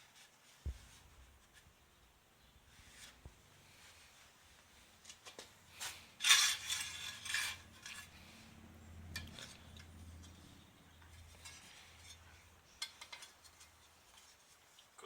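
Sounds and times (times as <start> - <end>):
metal tools clinking and clattering: 5.8 - 13.7.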